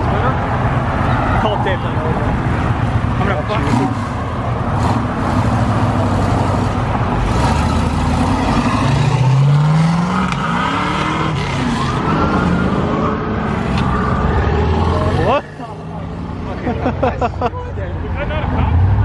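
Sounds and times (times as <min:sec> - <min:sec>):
car engines pulling away: 0:00.0 - 0:17.2
engine revving: 0:03.2 - 0:15.5.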